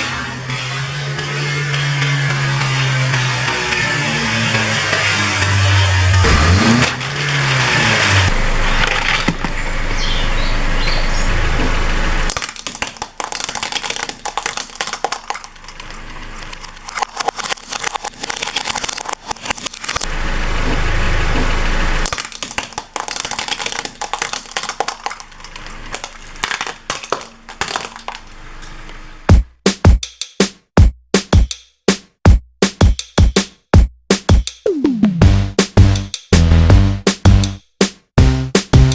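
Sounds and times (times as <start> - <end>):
car engine running: 5.2 - 12.3, 35.1 - 37.6
tyre crushing brittle objects: 6.1 - 10.4, 12.3 - 20.1, 22.0 - 29.1.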